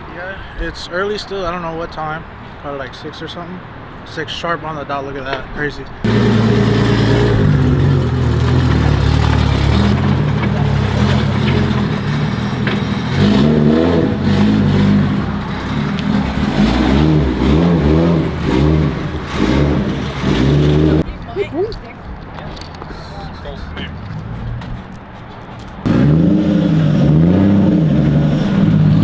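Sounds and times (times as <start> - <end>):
car engine revving: 6.0 - 21.1, 25.8 - 29.0.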